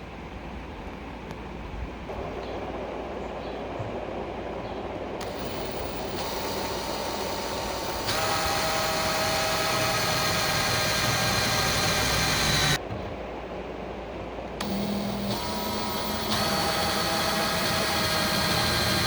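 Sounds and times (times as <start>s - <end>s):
workshop machine noise: 5.0s - 13.2s, 14.5s - 19.0s
steady multi-tone machine whine: 5.2s - 12.8s, 14.6s - 19.0s.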